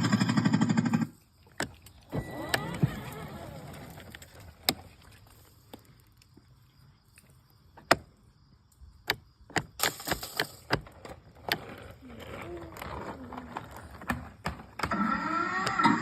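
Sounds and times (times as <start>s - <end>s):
sharp clicks and knocks: 9.0s - 11.6s.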